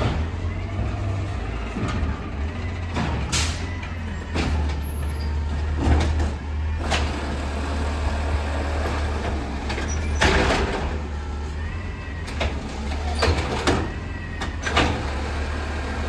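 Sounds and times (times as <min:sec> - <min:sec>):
garbage truck diesel engine: 0:00.0 - 0:16.0.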